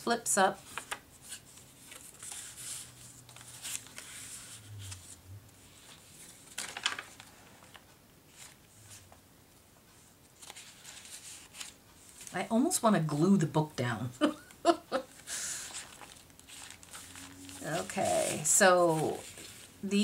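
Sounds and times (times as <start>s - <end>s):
paper and card rustling: 0.6s - 9.0s, 10.0s - 12.5s, 15.1s - 20.0s.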